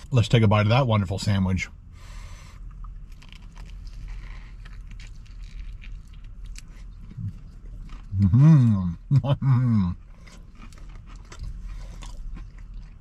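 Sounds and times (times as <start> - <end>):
crunching fried chicken: 2.7 - 8.5, 9.9 - 13.0.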